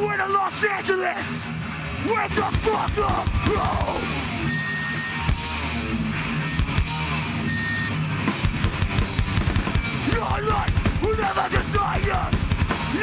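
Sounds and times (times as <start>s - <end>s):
hardcore band playing: 1.4s - 13.0s
fast drum beat: 2.0s - 7.4s, 8.2s - 13.0s.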